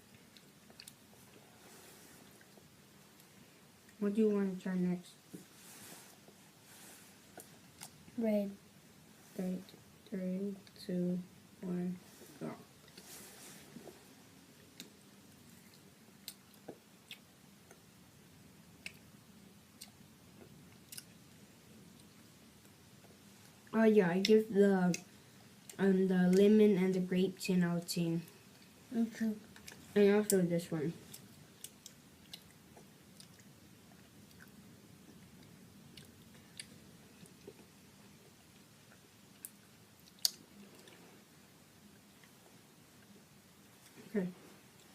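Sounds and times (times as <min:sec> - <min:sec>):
faint chewing of candy: 0:00.0 - 0:04.0, 0:14.6 - 0:17.9, 0:18.7 - 0:26.5, 0:29.5 - 0:44.9
low room hum: 0:00.0 - 0:44.9.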